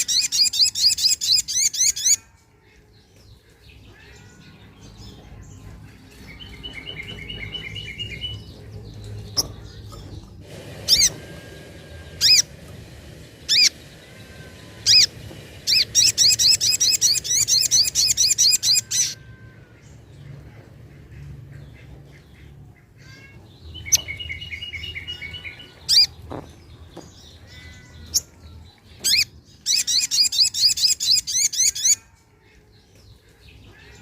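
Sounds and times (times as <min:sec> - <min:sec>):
bird calling high chips: 0:10.4 - 0:19.4.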